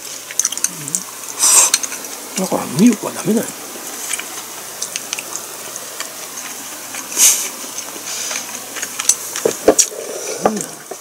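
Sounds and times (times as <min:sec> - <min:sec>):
wet chewing clicks: 0:00.0 - 0:02.6, 0:03.7 - 0:11.0
short airy hiss: 0:07.2 - 0:08.5.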